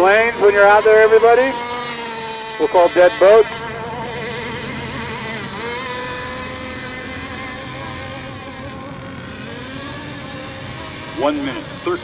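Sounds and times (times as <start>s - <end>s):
rc boats buzzing whine: 0.0s - 12.0s.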